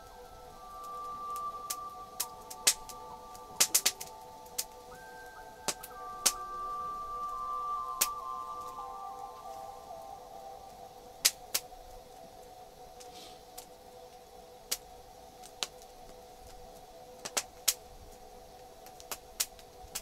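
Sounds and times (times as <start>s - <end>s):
campfire popping and crackling: 0.0s - 20.0s
slow droning background music: 0.0s - 20.0s.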